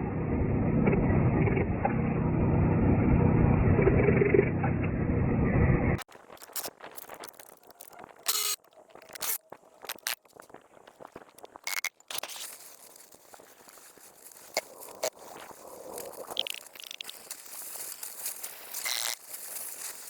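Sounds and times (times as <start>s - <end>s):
mechanical running noise with hum: 0.0s - 6.0s.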